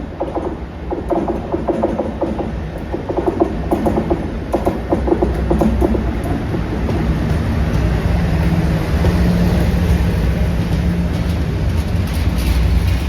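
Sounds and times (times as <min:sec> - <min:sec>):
diesel locomotive engine drone: 0:00.0 - 0:13.0
low rumble: 0:05.8 - 0:13.0.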